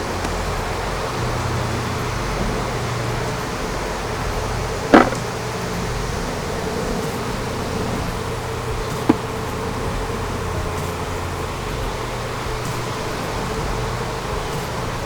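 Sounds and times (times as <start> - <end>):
bees buzzing: 0.0 - 15.0
sharp knocks: 4.9 - 5.4, 8.9 - 9.4.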